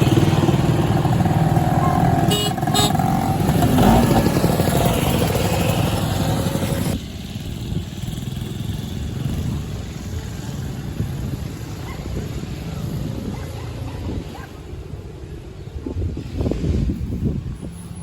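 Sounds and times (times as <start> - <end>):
motorcycle engine running: 0.0 - 14.3.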